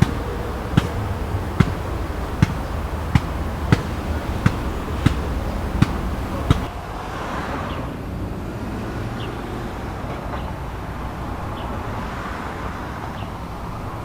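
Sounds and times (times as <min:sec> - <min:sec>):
footsteps walking: 0:00.0 - 0:06.7.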